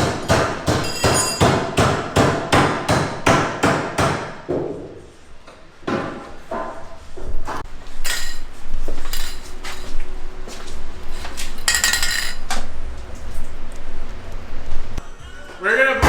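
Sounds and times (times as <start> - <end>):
hammer striking metal: 8.0 - 9.9.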